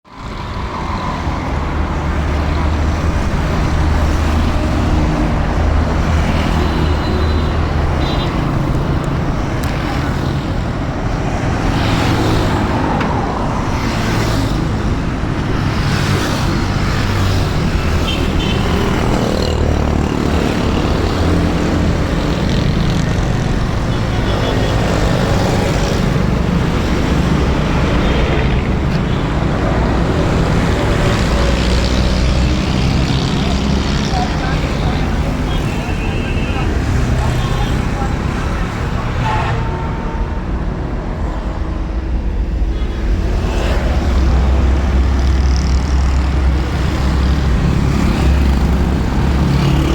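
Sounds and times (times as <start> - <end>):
road traffic rumble: 0.0 - 49.9.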